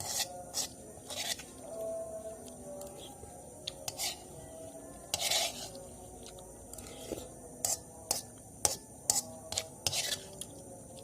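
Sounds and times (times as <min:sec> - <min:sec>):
utensil scraping bowl: 0:00.0 - 0:01.5, 0:03.7 - 0:04.3, 0:05.1 - 0:05.8, 0:06.7 - 0:10.4.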